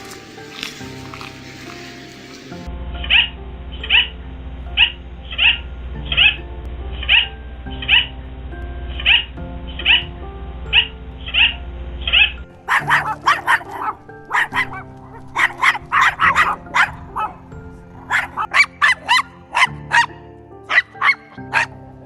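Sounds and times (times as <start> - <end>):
background music: 0.0 - 22.0
dog barking: 10.7 - 21.8.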